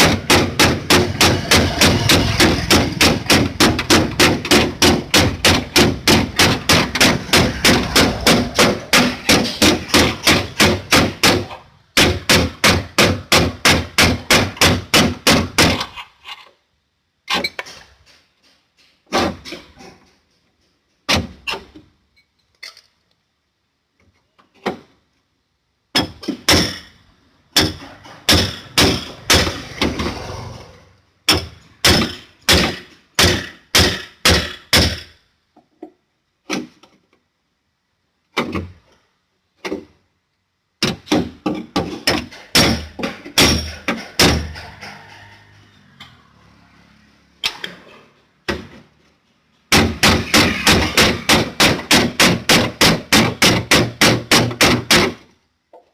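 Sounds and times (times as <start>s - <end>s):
hammer on sheet metal: 0.0s - 15.9s, 27.5s - 30.2s, 40.8s - 46.2s, 49.7s - 55.2s.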